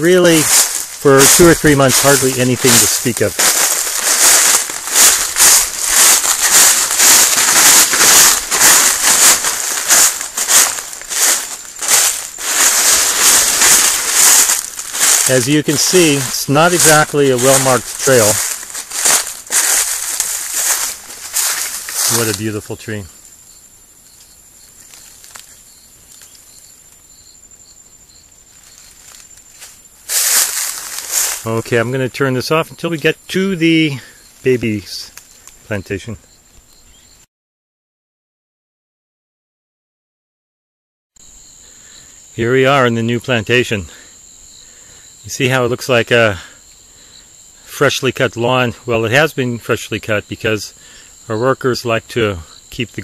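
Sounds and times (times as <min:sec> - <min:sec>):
brushing past plants: 0:00.0 - 0:22.7, 0:28.6 - 0:31.6
footsteps crunching dry leaves: 0:00.0 - 0:23.1, 0:24.7 - 0:25.6, 0:28.5 - 0:31.6
insect chirps: 0:00.0 - 0:37.3, 0:41.2 - 0:53.0
insect whine: 0:00.0 - 0:37.3, 0:41.2 - 0:53.0.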